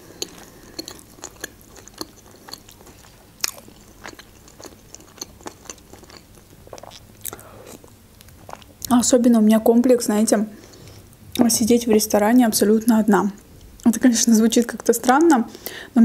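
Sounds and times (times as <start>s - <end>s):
person chewing food: 0.0s - 8.9s.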